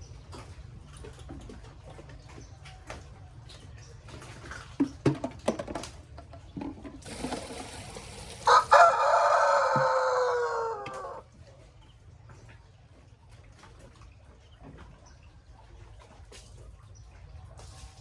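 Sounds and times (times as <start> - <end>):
rooster crowing: 8.4 - 11.2.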